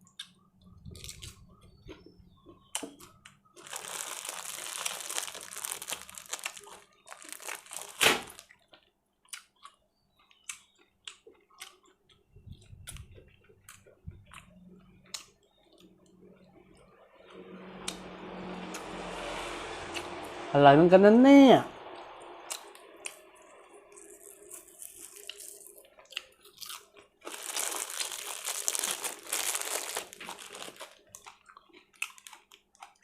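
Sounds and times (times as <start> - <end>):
person chewing food: 0.0 - 16.0, 22.5 - 33.0
rustling: 3.6 - 8.5, 27.3 - 31.0.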